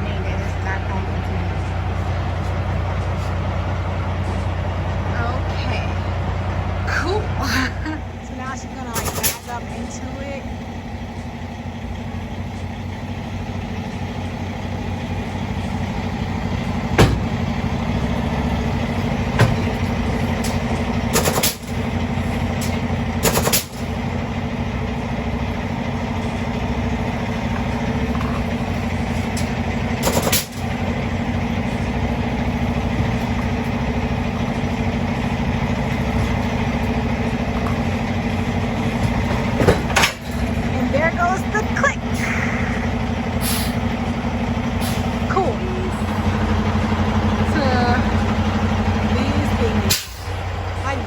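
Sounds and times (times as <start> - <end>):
truck diesel engine running: 0.0 - 51.0
air hissing: 42.2 - 44.0.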